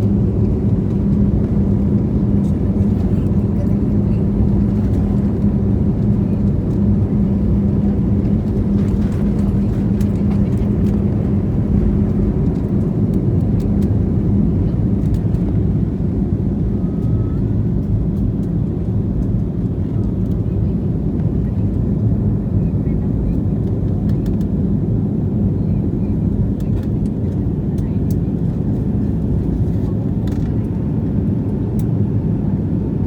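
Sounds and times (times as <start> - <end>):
jet engines rumbling in cabin: 0.0 - 33.0.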